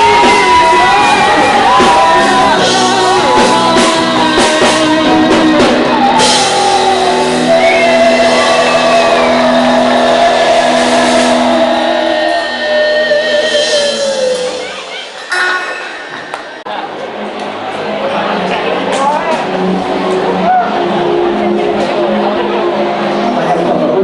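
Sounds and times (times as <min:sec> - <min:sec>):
rock band playing live: 0:00.0 - 0:17.7.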